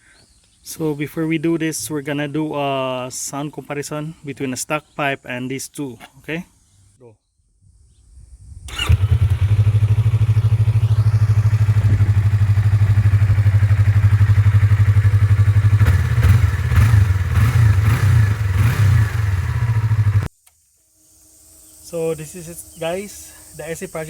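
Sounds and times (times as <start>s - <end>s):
engine revving: 8.7s - 20.3s
motorcycle engine idling: 8.7s - 20.3s.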